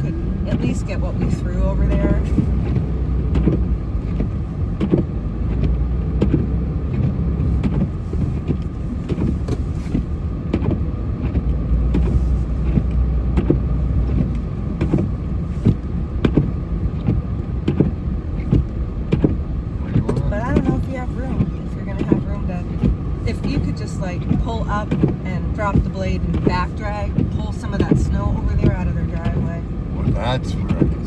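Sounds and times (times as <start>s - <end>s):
vehicle engine rumbling: 0.0s - 31.0s.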